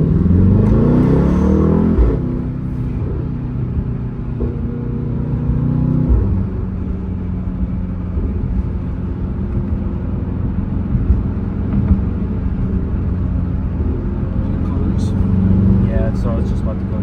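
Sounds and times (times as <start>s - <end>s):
car exhaust rumble: 0.0s - 17.0s.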